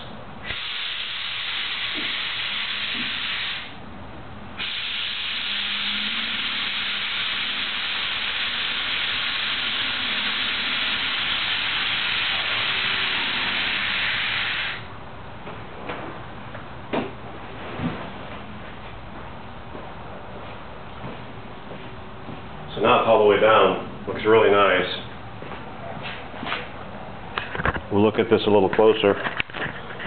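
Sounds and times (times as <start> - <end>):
air suspension hissing: 0.4 - 3.8, 4.6 - 14.9.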